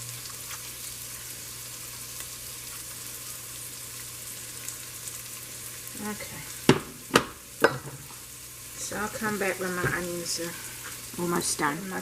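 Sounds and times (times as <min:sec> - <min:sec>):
oil crackling: 0:00.0 - 0:12.0
onions sizzling in a pan: 0:00.0 - 0:12.0.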